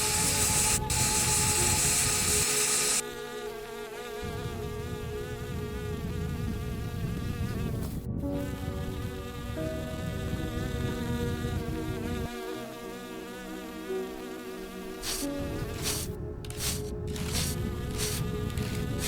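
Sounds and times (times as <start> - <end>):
bees buzzing: 0.0 - 3.0, 14.7 - 19.0
steady rushing noise: 15.0 - 19.0.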